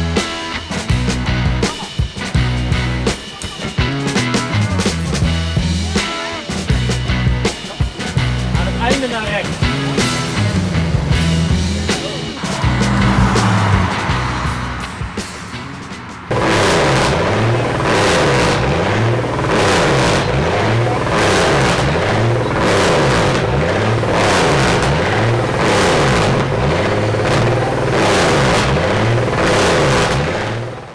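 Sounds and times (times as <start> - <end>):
car engine at full throttle: 8.2 - 30.9.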